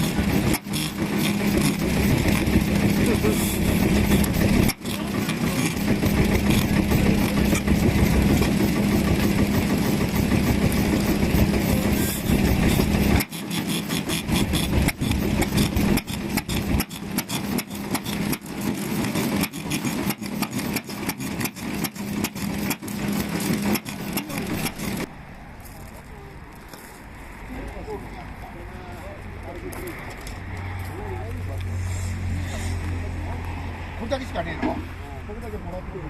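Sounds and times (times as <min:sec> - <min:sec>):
stationary engines running: 0:00.0 - 0:26.7.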